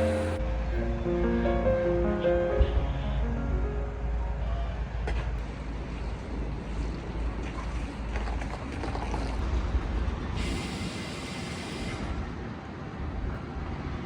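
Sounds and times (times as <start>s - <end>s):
background music: 0.0s - 5.1s
train running rumble: 0.0s - 8.7s.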